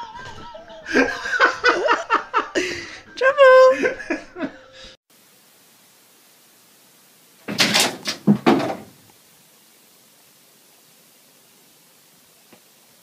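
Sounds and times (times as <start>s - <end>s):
faint steady hiss: 0.0s - 13.0s
clatter of knocks and rattles: 7.5s - 9.0s.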